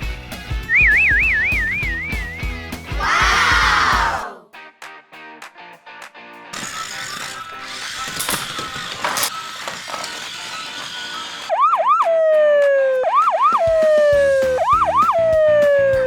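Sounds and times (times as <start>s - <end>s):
background music: 0.0s - 10.4s
electronic siren whooping: 9.2s - 16.0s.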